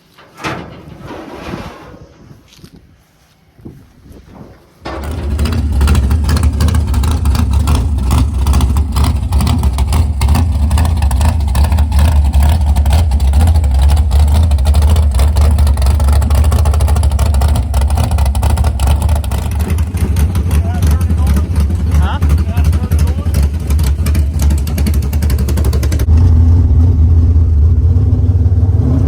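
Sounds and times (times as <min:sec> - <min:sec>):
vehicle engine rumbling: 0:00.0 - 0:29.0.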